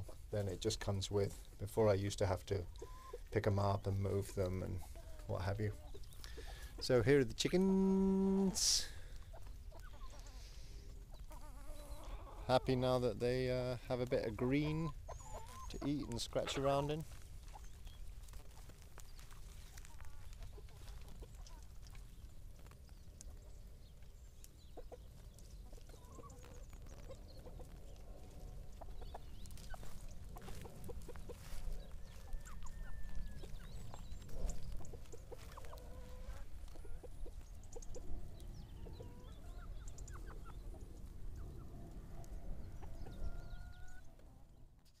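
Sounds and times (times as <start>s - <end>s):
hens clucking: 0.0s - 44.5s.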